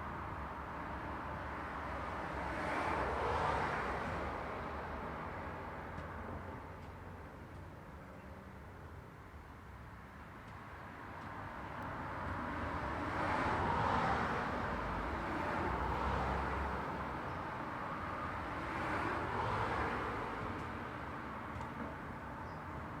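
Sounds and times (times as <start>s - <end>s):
vehicles passing: 11.2s - 22.1s.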